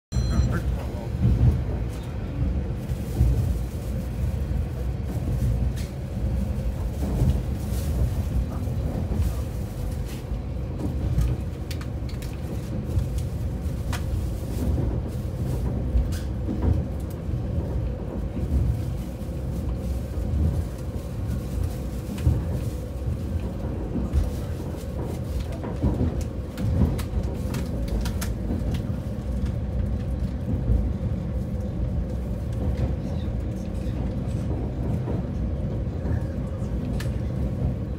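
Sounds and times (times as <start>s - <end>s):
diesel railcar rumbling: 0.1s - 37.9s.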